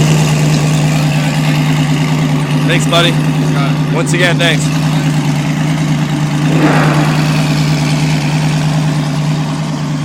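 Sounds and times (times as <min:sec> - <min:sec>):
sports car engine idling: 0:00.0 - 0:06.5.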